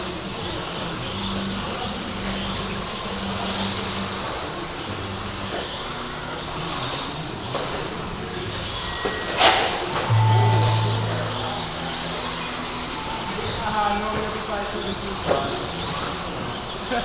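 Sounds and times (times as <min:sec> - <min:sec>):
electric rc trucks racing: 0:00.0 - 0:09.9, 0:14.6 - 0:17.0.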